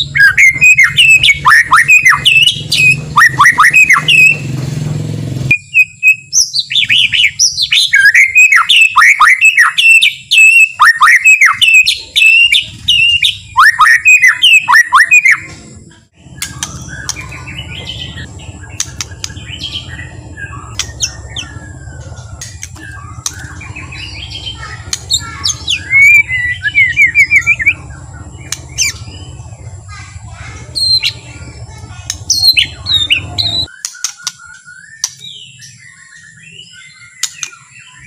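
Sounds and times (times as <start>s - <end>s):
bird singing: 0.0s - 38.0s
steady low hum: 15.4s - 33.7s.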